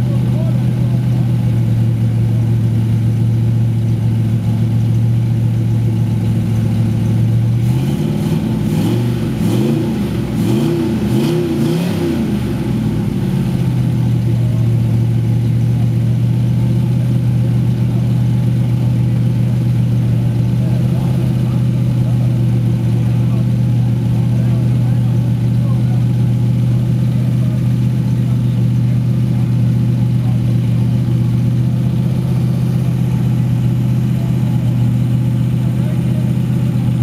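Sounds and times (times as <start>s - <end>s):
car engine idling: 0.0s - 37.0s
engine revving: 7.1s - 15.8s, 16.7s - 37.0s.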